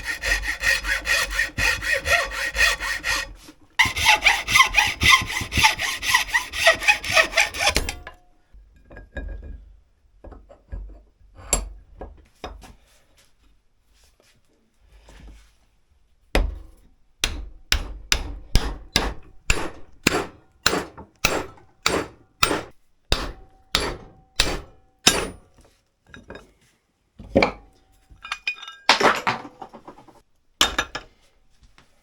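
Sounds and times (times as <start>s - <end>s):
hammer striking axe: 17.2s - 25.4s.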